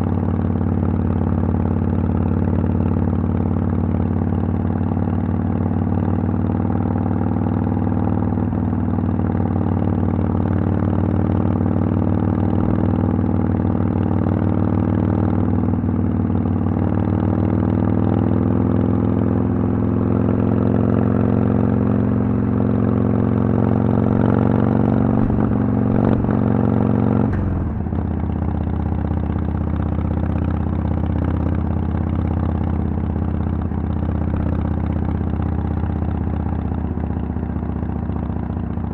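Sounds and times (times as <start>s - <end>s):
motorcycle engine revving: 19.2s - 35.4s.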